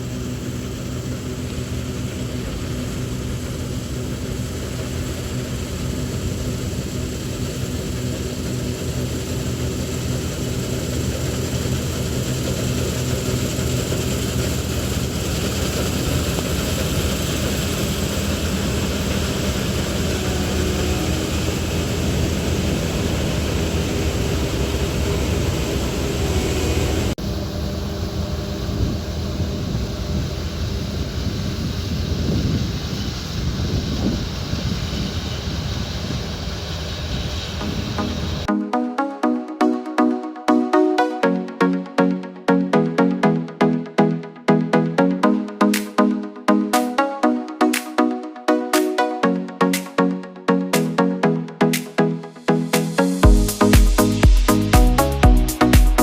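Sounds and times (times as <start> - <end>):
combine harvester engine drone: 0.0 - 38.5.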